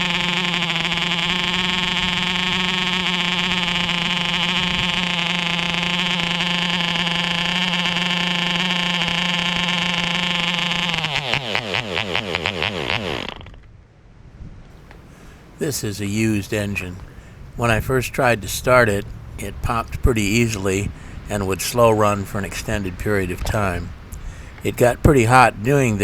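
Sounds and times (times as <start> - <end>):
model airplane engine running: 0.0 - 13.6, 14.8 - 26.0.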